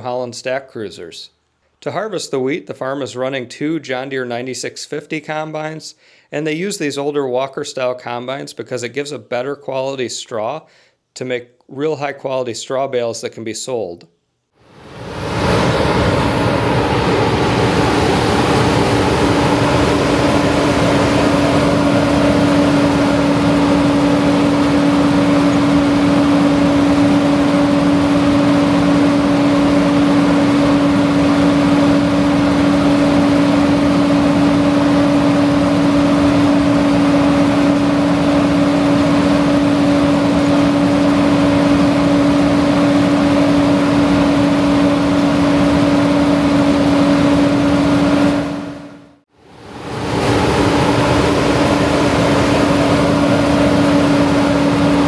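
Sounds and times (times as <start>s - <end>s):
combine harvester droning: 14.7s - 55.0s.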